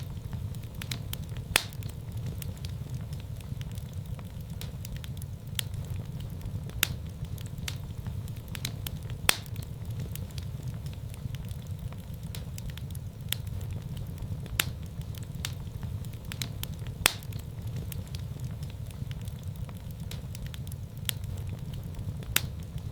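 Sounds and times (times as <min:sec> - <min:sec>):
fire crackling pops: 0:00.0 - 0:22.9
low rumble of flames: 0:00.0 - 0:22.9.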